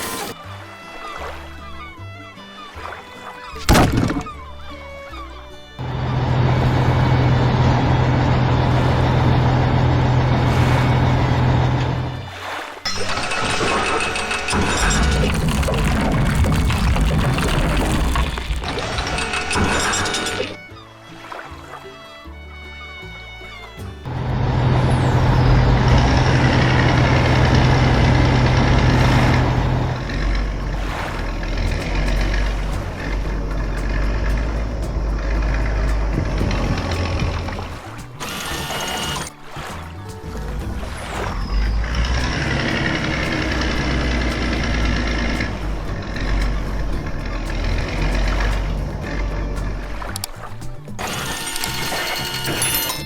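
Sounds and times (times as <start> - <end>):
music: 0.0 - 53.0
heavy vehicle engine humming: 4.4 - 12.3, 24.0 - 39.4, 40.0 - 51.1.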